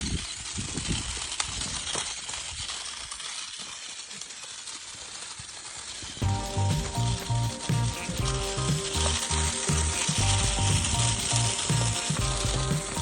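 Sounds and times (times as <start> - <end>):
background music with steady beat: 6.2 - 13.0.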